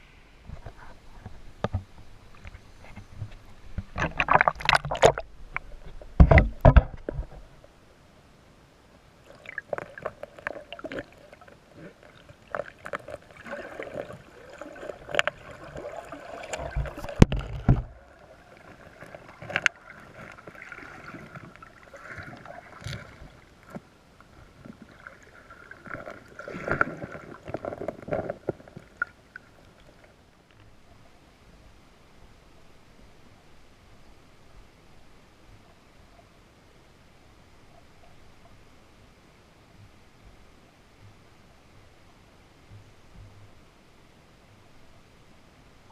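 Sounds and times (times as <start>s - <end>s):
creek water gurgling and splashing: 0.0s - 7.8s, 9.2s - 31.2s.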